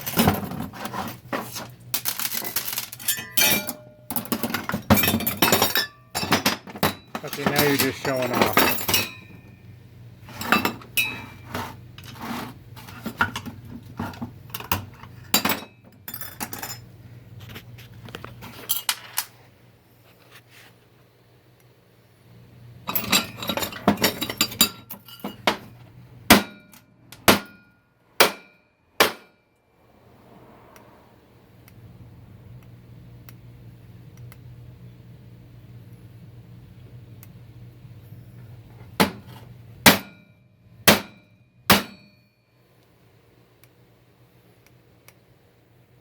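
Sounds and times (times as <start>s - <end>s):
metal parts clinking and knocking: 0.0s - 9.4s, 22.9s - 25.8s.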